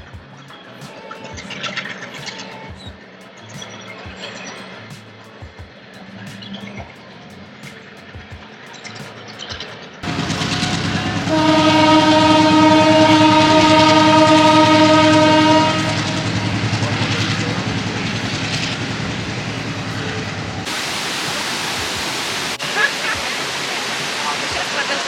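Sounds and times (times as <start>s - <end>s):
train wheels clattering on rails: 7.6s - 20.8s
train horn blast: 10.0s - 20.7s.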